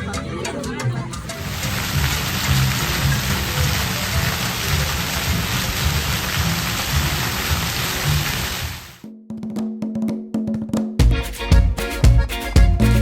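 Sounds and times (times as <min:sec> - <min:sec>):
heavy rain pouring: 0:01.4 - 0:09.0.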